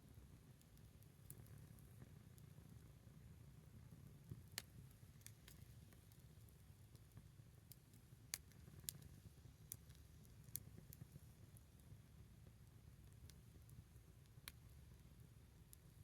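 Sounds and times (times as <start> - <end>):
wood fire crackling: 4.0 - 16.0
pops and snaps of burning wood: 4.2 - 11.6, 12.5 - 16.0.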